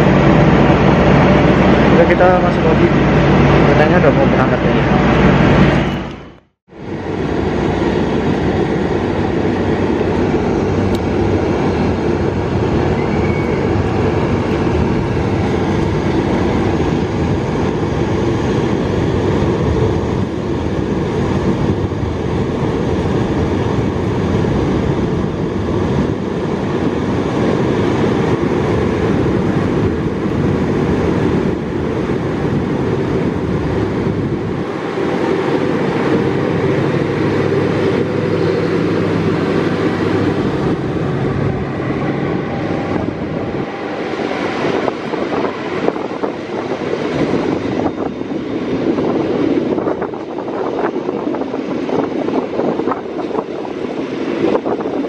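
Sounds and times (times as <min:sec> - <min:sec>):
train rumbling on rails: 0:00.0 - 0:55.0.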